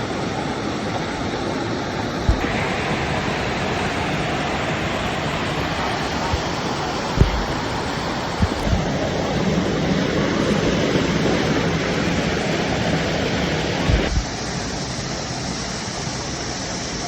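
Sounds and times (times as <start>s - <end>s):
water rushing: 0.0s - 17.0s
low thumps: 2.3s - 2.6s, 7.2s - 9.1s, 13.9s - 14.3s.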